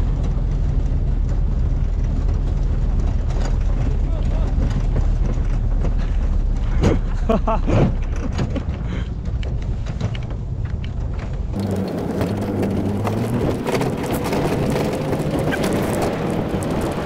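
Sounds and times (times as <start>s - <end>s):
vehicle running with low hum: 0.0s - 17.0s
wind or tyre noise: 0.0s - 17.0s.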